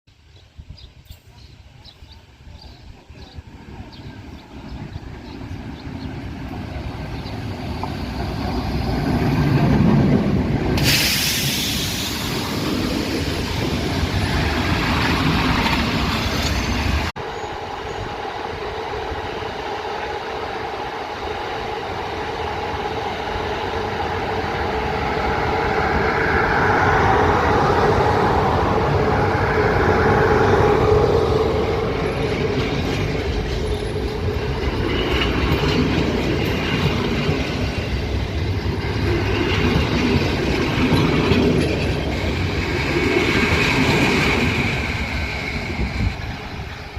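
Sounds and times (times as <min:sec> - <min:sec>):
train rolling on rails: 0:00.5 - 0:46.9
loud hiss: 0:10.7 - 0:14.3.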